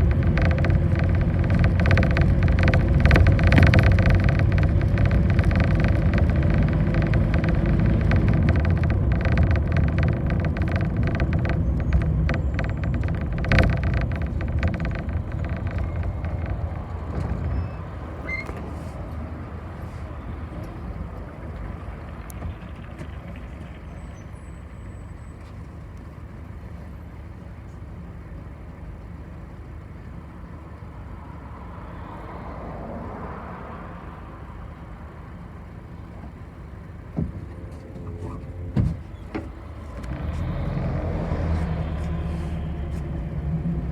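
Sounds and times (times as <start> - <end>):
sharp knocks: 0.0 - 17.6
bus engine running: 0.0 - 43.9.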